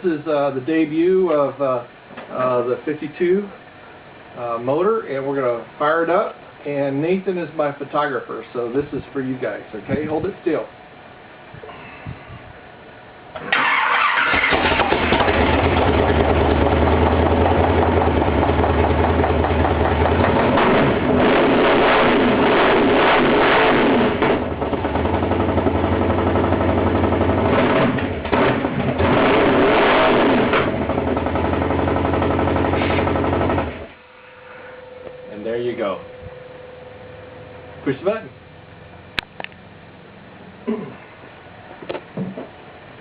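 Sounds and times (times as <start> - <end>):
truck engine starting and running: 13.3 - 34.0.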